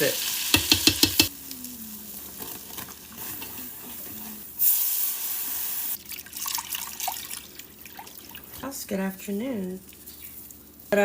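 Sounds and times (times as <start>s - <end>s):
kitchen tap running: 0.0s - 1.3s, 5.0s - 8.7s
water drips: 6.0s - 8.7s.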